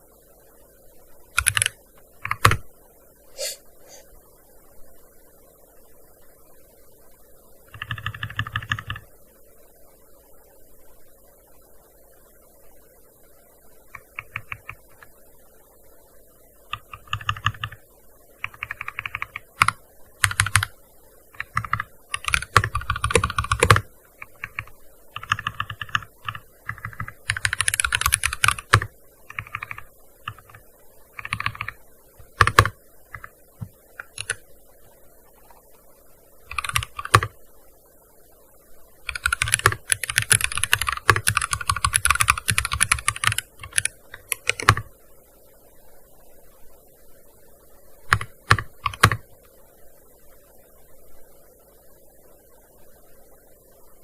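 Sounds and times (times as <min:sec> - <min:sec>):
keyboard typing: 0:01.4 - 0:02.6, 0:07.7 - 0:09.0, 0:13.9 - 0:15.1, 0:16.7 - 0:17.8, 0:18.4 - 0:20.7, 0:21.3 - 0:34.4, 0:36.5 - 0:37.4, 0:39.1 - 0:44.9, 0:48.1 - 0:49.2.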